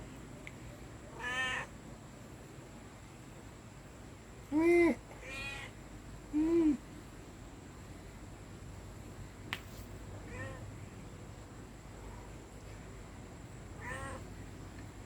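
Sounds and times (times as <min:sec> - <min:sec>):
cat meowing: 0:01.2 - 0:01.7, 0:05.2 - 0:05.7, 0:10.3 - 0:10.6, 0:13.8 - 0:14.2.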